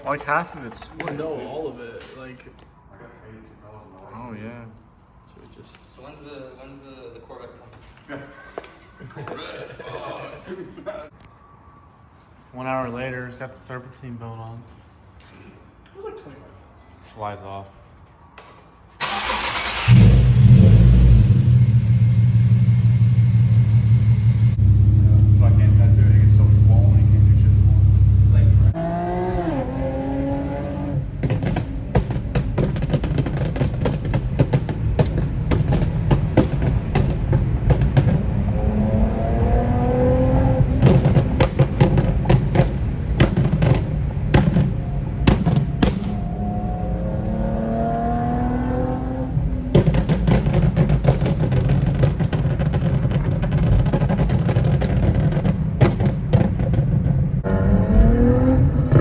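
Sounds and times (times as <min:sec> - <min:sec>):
sharp exhaust cracks: 0:19.0 - 0:28.9, 0:30.8 - 0:47.3
car engine pulling hard: 0:19.0 - 0:59.0.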